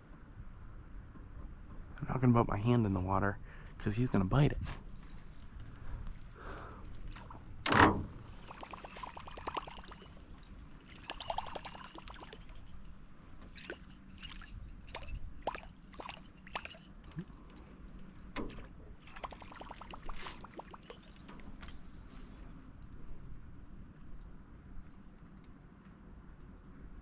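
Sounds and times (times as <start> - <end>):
sharp water splash: 8.3 - 12.7, 13.5 - 17.3, 19.0 - 21.3
water drips and trickles: 8.3 - 22.7.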